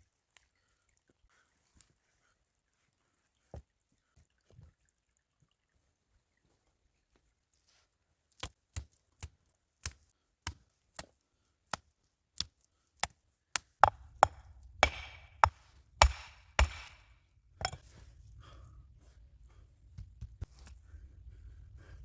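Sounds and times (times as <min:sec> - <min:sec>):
wood chopping strikes: 0:13.0 - 0:17.8
steady low rumble: 0:13.9 - 0:22.0.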